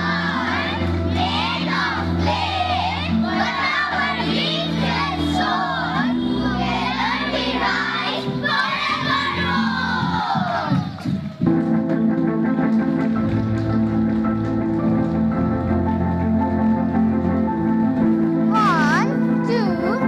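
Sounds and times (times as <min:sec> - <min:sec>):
children singing: 0:00.0 - 0:10.9
backing music: 0:00.0 - 0:20.0.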